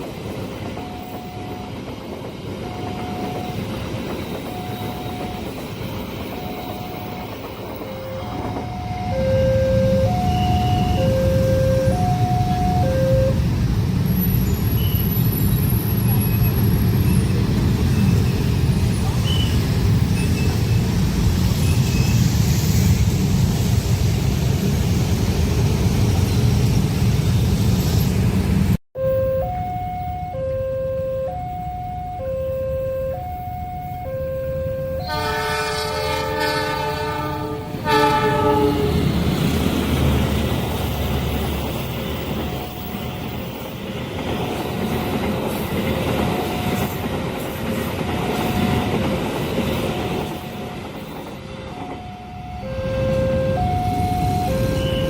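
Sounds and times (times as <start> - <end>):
train rumbling: 0.0 - 28.8, 33.2 - 55.0
two-tone crossing warning signal: 0.6 - 13.6, 29.0 - 43.6, 45.1 - 47.1, 51.2 - 55.0
train air horn: 7.9 - 13.4, 34.0 - 39.1
high squeal: 14.1 - 23.0.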